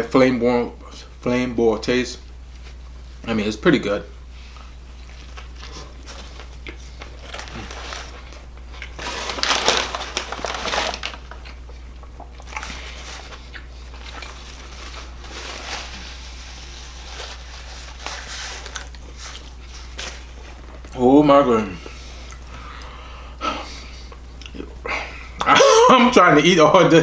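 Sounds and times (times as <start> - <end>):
low electrical hum: 0.0 - 27.0
person eating: 4.6 - 21.0, 21.8 - 25.6
paper wrapper crinkling: 5.1 - 11.7, 12.4 - 20.9.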